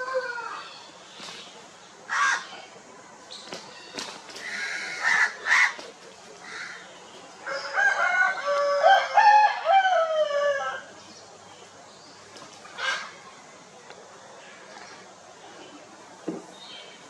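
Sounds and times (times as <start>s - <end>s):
rooster crowing: 0.0s - 0.7s, 7.4s - 10.9s
chickens clucking and squawking: 0.0s - 17.0s.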